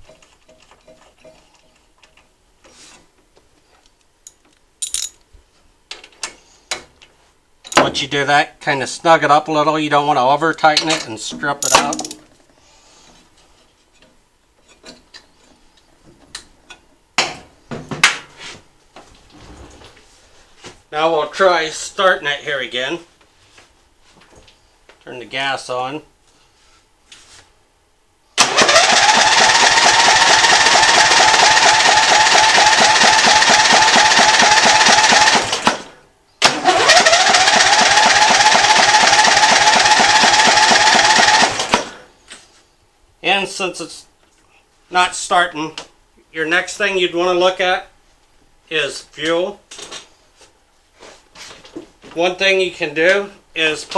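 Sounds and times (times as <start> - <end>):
metal hand tools clicking: 4.8 - 5.2, 10.8 - 12.2
electric starter cranking engine: 28.4 - 42.0.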